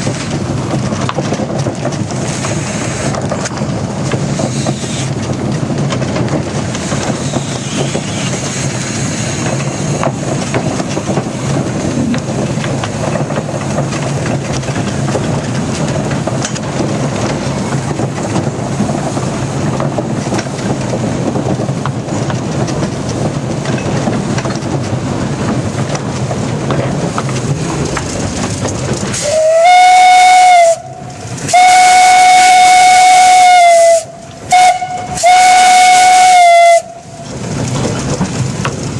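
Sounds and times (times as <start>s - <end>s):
steam locomotive rumble and hiss: 0.0s - 38.9s
loud steam whistle: 29.2s - 37.2s.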